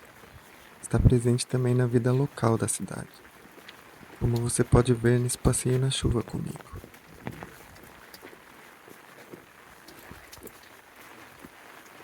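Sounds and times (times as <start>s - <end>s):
light rain falling: 0.0s - 12.0s
soft footsteps: 2.9s - 12.0s.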